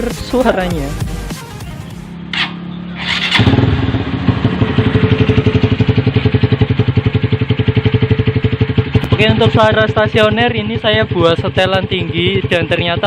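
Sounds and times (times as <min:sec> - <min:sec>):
motorcycle engine idling fast: 0:02.8 - 0:13.0.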